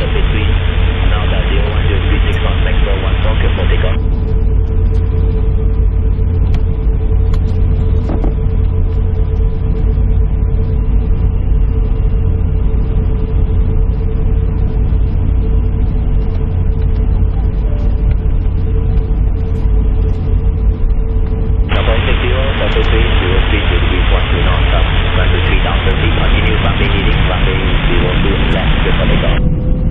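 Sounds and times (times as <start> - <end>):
airliner cabin low rumble: 0.0 - 29.9
mid-pitched hum: 0.0 - 29.9.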